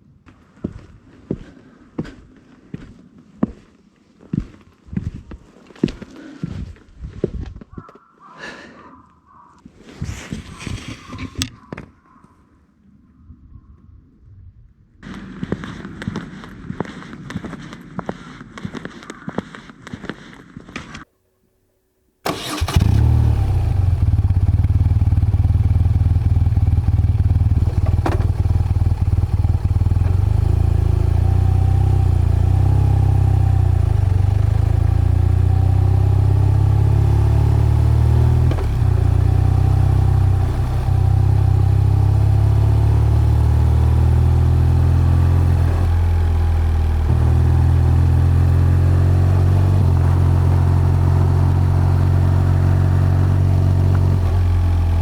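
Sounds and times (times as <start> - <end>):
motorcycle engine and exhaust running: 22.3 - 55.0.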